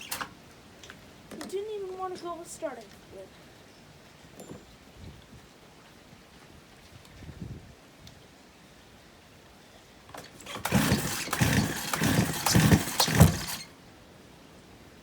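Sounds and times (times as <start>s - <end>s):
chainsaw pull-start cranking: 0.0s - 0.4s, 10.1s - 13.7s.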